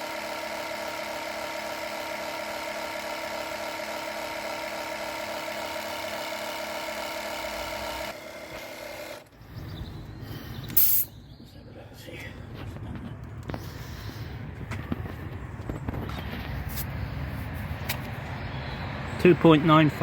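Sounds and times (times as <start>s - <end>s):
air compressor whine: 0.0s - 11.1s.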